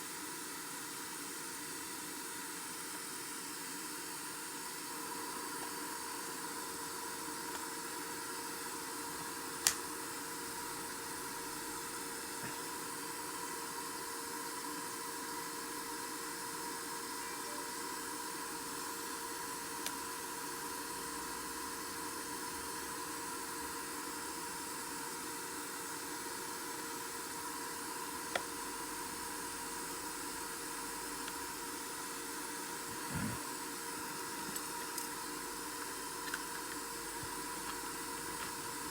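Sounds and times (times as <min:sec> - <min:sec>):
steady hiss: 0:00.0 - 0:38.9
faint hum tone: 0:16.8 - 0:18.5.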